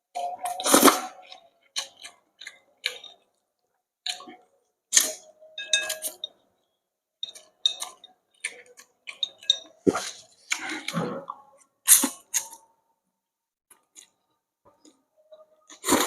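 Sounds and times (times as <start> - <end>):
dishes and utensils clinking: 5.0 - 6.4, 7.2 - 12.6.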